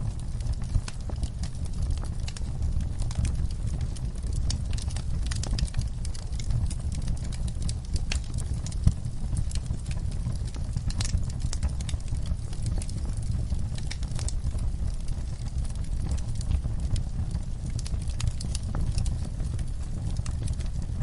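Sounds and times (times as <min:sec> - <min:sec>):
fire crackling and popping: 0:00.0 - 0:21.0.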